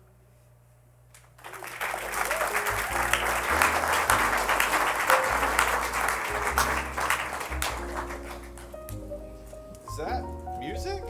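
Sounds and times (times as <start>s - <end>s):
audience applause: 1.4s - 8.9s
soft background music: 2.0s - 11.0s.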